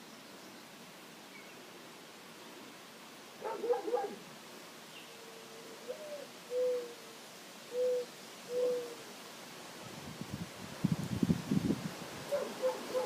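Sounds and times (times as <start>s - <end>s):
bird hooting coo: 5.2s - 9.1s, 12.3s - 13.0s.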